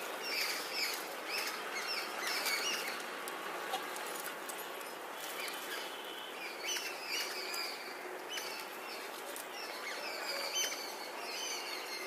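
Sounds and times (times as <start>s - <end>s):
small birds chirping: 0.0s - 12.0s
steady background hiss: 0.0s - 12.0s.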